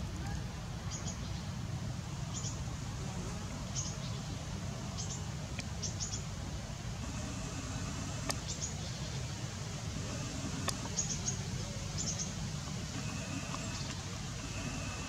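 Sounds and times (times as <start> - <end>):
small bird chirping: 7.0 - 15.0.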